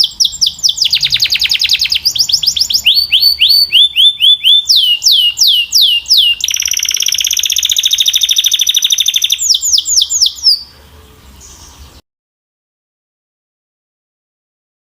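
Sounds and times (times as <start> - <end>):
canary singing: 0.0 - 12.0.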